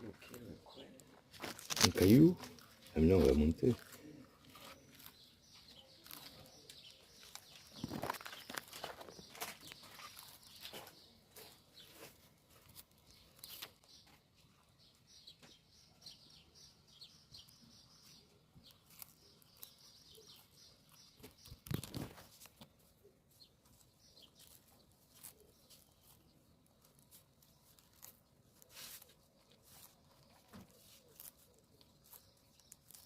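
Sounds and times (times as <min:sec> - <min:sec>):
faint clicks and rustles: 0:00.0 - 0:14.5, 0:18.4 - 0:33.0.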